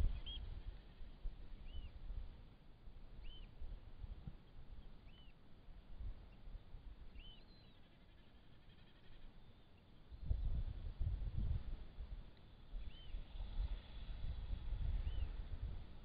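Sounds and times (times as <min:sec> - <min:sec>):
bird chirping: 0:00.0 - 0:00.5, 0:03.2 - 0:03.5, 0:05.0 - 0:05.4, 0:07.1 - 0:10.3, 0:12.8 - 0:13.2.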